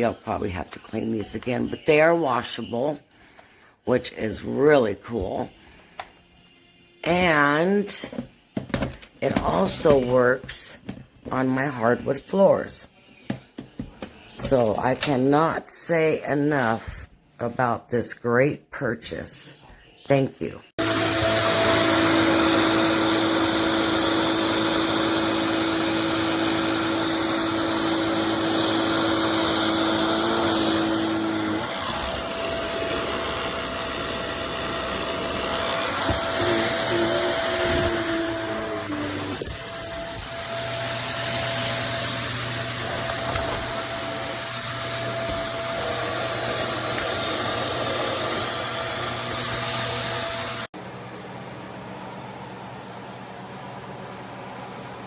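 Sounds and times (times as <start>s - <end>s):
vacuum cleaner motor hum: 20.8s - 55.0s.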